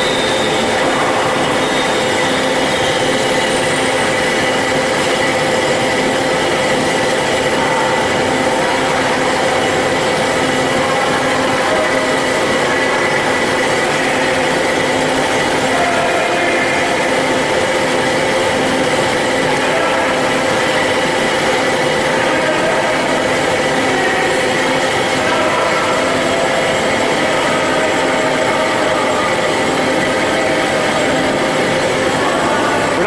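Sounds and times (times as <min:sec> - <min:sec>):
band saw machine whine: 0:00.0 - 0:33.0.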